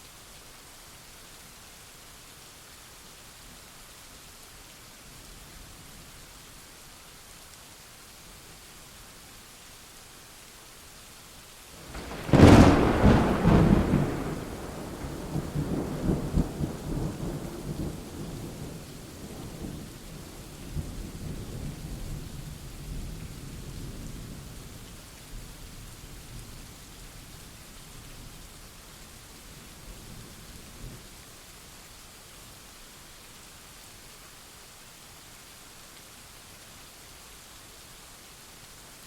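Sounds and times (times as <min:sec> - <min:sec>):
steady rain hiss: 0:00.0 - 0:39.0
thunderclap with rolling rumble: 0:11.9 - 0:19.8.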